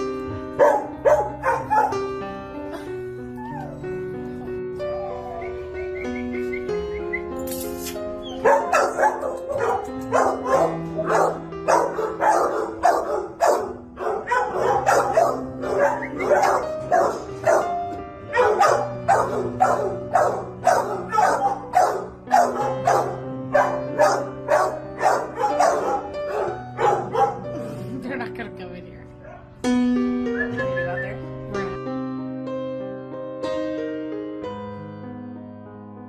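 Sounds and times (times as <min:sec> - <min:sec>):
dog barking: 0:00.6 - 0:02.0, 0:08.4 - 0:27.6.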